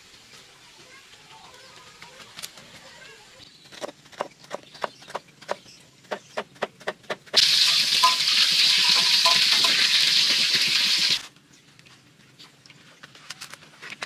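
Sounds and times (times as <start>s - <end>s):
deep-frying sizzle in oil: 7.4s - 11.3s.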